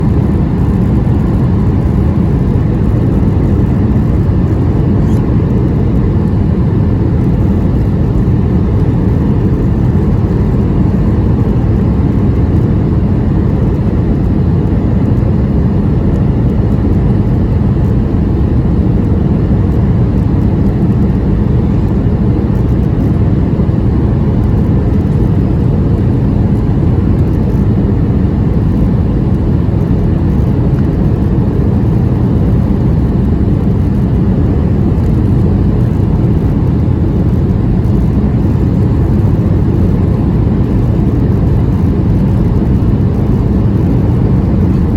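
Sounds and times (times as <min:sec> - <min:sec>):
aircraft cabin engine rumble: 0:00.0 - 0:44.9.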